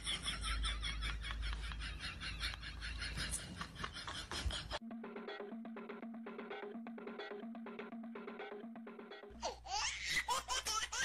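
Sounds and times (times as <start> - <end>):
music with steady beat: 4.8 - 9.4.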